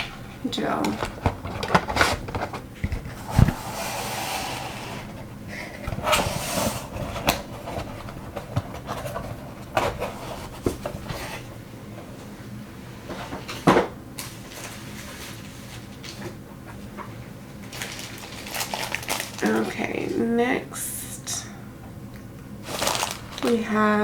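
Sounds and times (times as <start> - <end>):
packaging rustling: 0.0 - 3.6, 17.6 - 19.8, 22.6 - 23.8
plastic items clicking and tapping: 0.7 - 3.5, 22.7 - 23.6.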